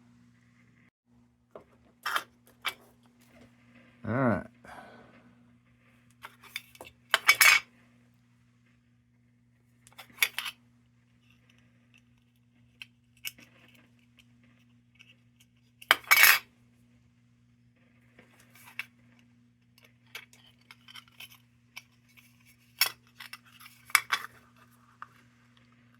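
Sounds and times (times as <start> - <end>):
faint electrical hum: 0.0 - 25.9
metal tools clattering on workbench: 6.3 - 7.6.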